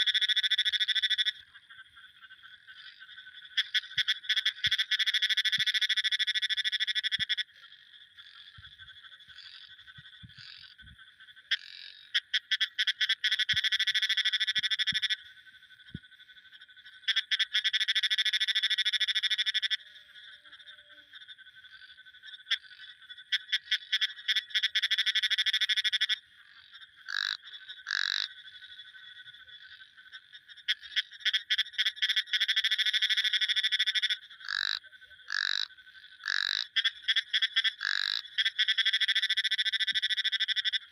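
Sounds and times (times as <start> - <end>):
frog calling in pulsed trills: 0.0 - 40.9
short frog calls: 0.0 - 40.9.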